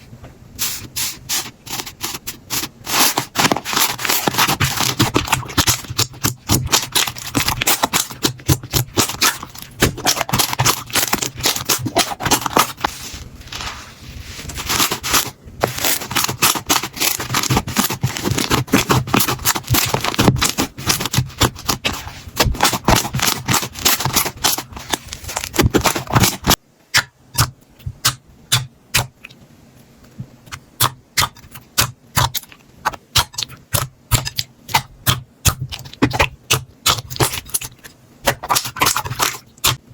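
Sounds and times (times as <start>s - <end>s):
slime crackling and popping: 2.9s - 12.9s, 30.8s - 39.8s.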